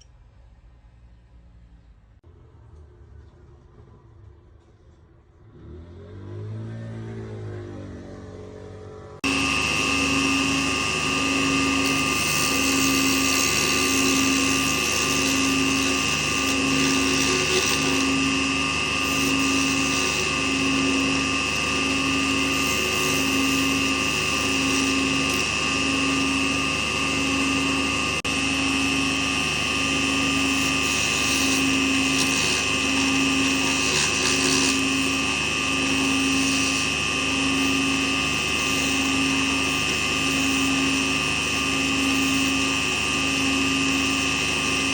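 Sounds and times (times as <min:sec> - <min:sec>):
lathe motor whining: 0:08.3 - 0:44.9.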